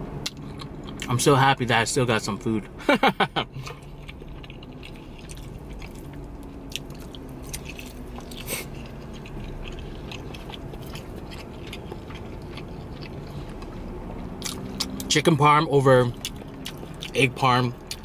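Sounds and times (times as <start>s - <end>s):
low steady hum: 0.0s - 18.0s
person biting and chewing: 0.2s - 1.1s, 3.6s - 15.1s, 16.2s - 17.2s.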